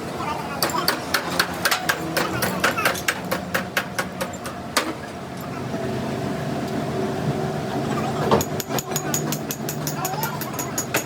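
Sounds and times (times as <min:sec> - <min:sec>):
engine hum: 0:00.0 - 0:11.0.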